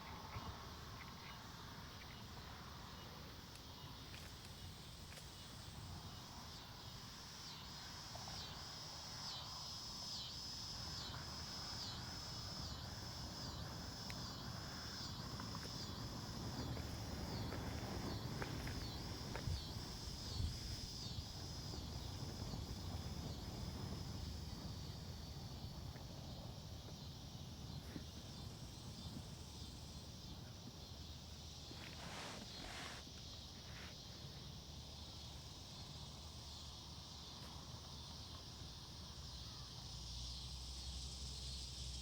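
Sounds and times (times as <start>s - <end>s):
insects calling in pulsing chorus: 0.0s - 42.0s
wind rumble on microphone: 10.8s - 33.0s.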